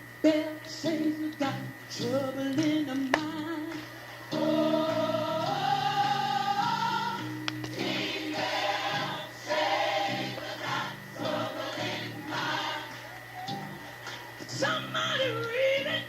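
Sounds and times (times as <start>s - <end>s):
choir singing gospel: 2.0s - 14.8s.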